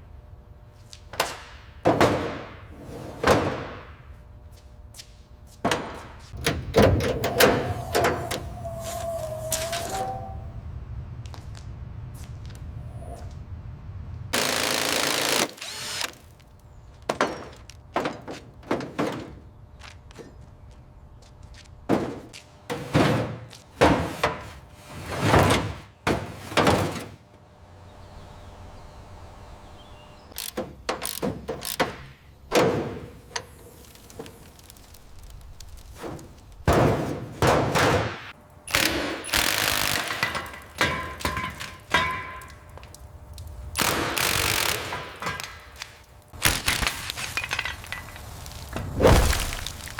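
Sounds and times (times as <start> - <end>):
tools clunking and knocking: 5.6 - 10.4, 16.9 - 19.5, 21.9 - 27.4, 30.3 - 33.6, 40.2 - 42.9.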